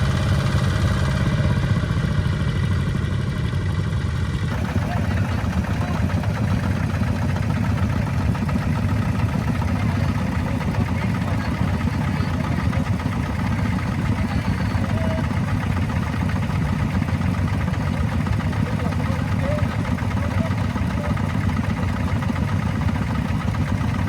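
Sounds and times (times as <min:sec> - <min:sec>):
tractor engine chugging: 0:00.0 - 0:24.0.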